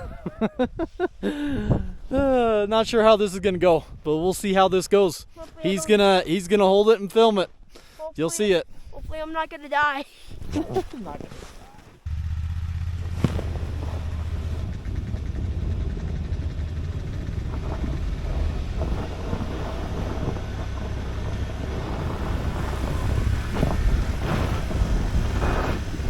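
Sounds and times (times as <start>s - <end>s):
vehicle engine running: 12.0s - 26.0s.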